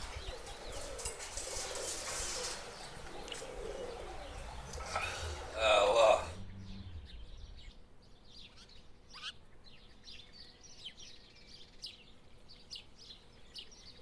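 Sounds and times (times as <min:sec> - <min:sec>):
downward sweeping bird call: 0:00.0 - 0:09.3
small birds chirping: 0:00.0 - 0:14.0.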